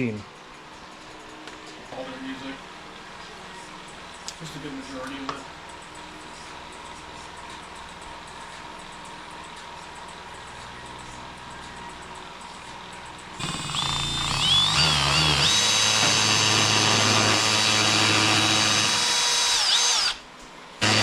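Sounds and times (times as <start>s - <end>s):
power tool whining: 13.4s - 20.2s, 20.8s - 21.0s.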